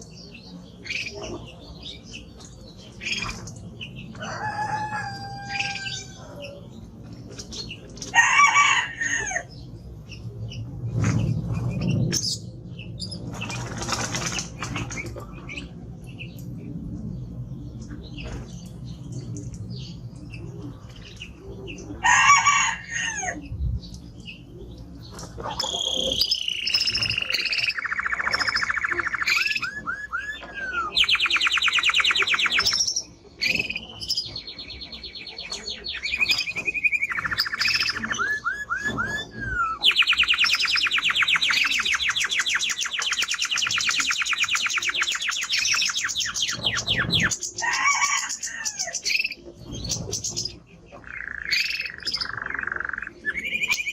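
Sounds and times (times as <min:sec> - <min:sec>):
canary singing trills: 0:00.0 - 0:08.2, 0:22.9 - 0:53.9.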